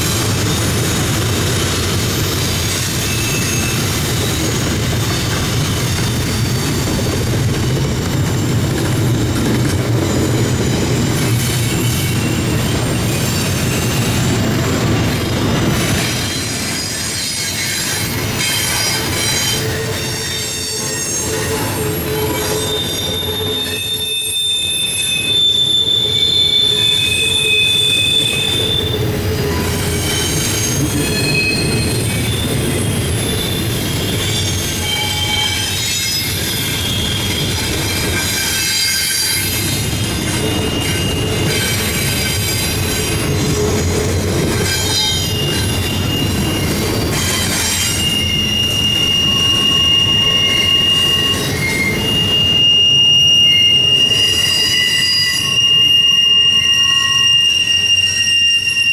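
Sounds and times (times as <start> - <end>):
freight train rumbling past: 0.0 - 25.2, 26.0 - 58.8
wheel flanges squealing on rail: 0.0 - 58.9.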